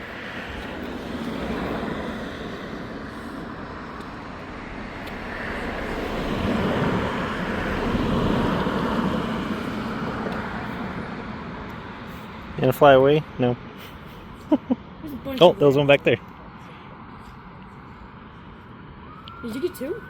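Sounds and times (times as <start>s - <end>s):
passing vehicle rumble: 0.0s - 20.0s.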